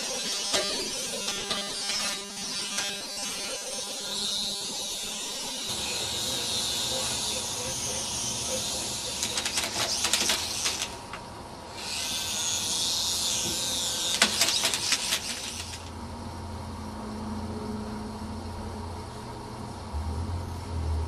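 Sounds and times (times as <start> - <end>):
rapid clicking of blades: 0.0 - 3.8, 8.5 - 11.2, 13.9 - 15.9
toy helicopter rotor whirring: 0.0 - 16.0.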